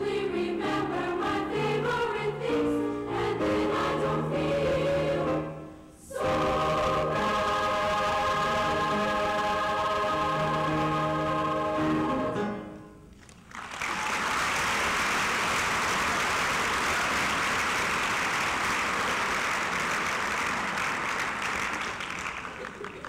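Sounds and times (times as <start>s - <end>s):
choir holding final chord: 0.0s - 12.6s
audience applause: 13.2s - 23.0s.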